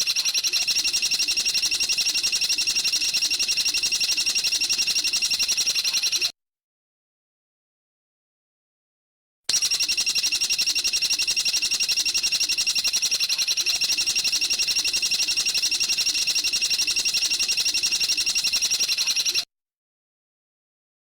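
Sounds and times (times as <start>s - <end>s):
bird chattering trill: 10.4s - 19.4s.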